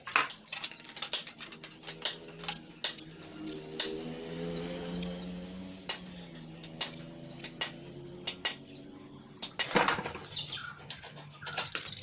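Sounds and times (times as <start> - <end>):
steady low hum: 0.0 - 9.7
metal tools clinking: 0.0 - 9.8
metal rattle: 0.0 - 10.2.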